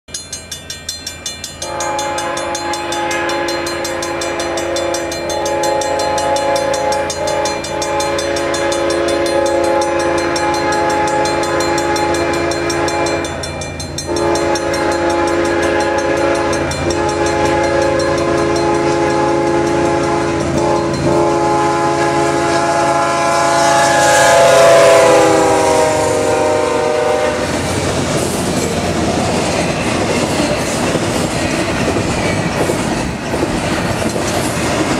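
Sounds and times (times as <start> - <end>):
crossing bell clanging: 0.1 - 34.9
passing train cars rumbling: 0.1 - 34.9
locomotive air horn: 1.6 - 13.4, 14.1 - 27.7.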